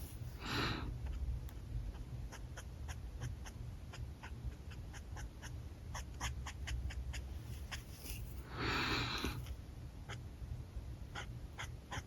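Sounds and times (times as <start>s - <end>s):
marker strokes on paper: 0.0s - 0.4s, 7.3s - 8.4s
steady low hum: 0.0s - 12.0s.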